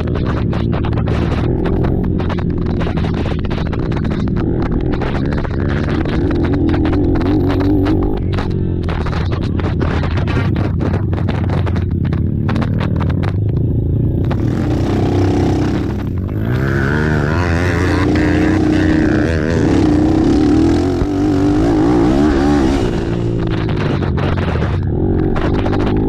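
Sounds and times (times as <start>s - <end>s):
atv engines revving: 0.0s - 26.0s.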